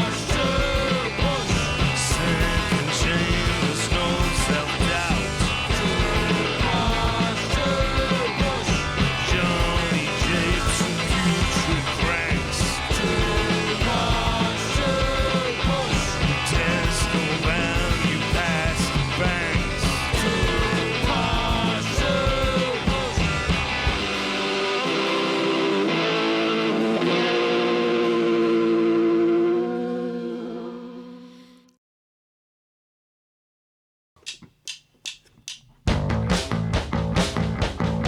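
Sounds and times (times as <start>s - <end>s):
person singing: 0.0s - 23.4s, 24.0s - 31.7s
rock band playing: 0.0s - 29.1s, 35.9s - 38.0s.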